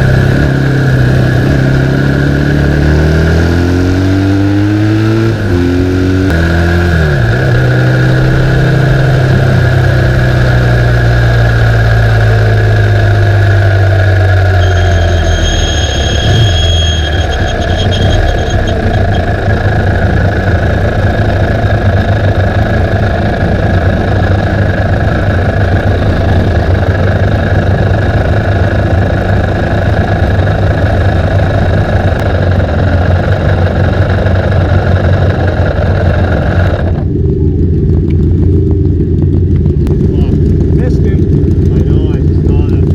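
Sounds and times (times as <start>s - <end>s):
motorcycle engines idling: 6.3s - 42.9s.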